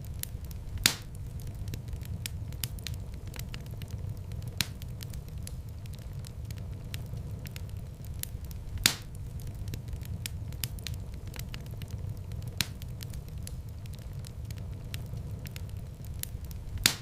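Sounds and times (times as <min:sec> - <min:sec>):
wood fire crackling: 0:00.0 - 0:17.0
loud fire pop: 0:00.8 - 0:01.2, 0:08.8 - 0:09.2, 0:16.8 - 0:17.0.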